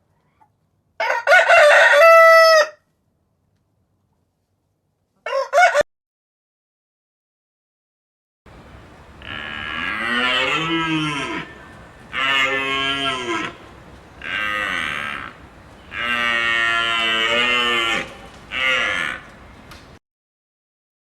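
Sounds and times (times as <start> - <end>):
cow mooing: 8.6 - 19.6.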